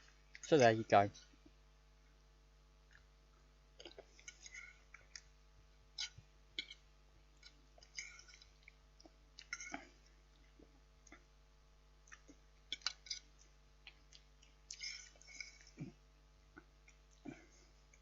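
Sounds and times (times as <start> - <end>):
chewing: 2.8 - 11.3, 12.0 - 18.0.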